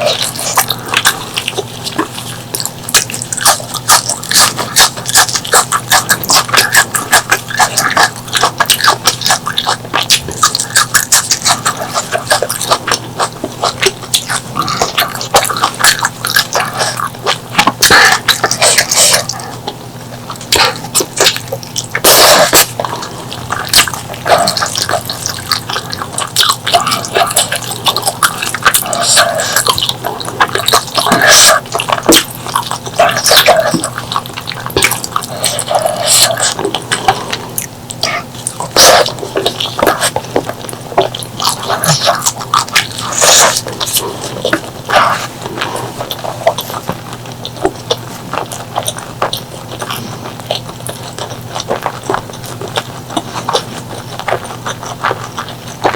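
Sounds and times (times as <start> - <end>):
wet chewing and lip smacking: 0.0 - 55.9.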